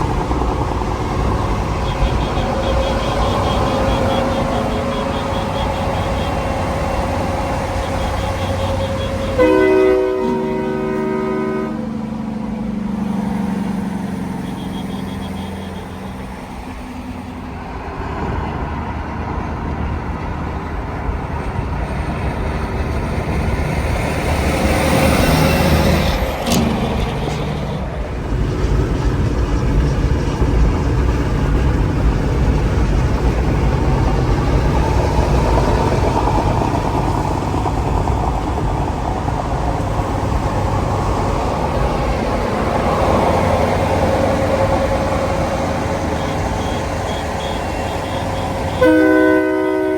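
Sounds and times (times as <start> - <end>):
heavy vehicle engine passing: 0.0 - 49.9.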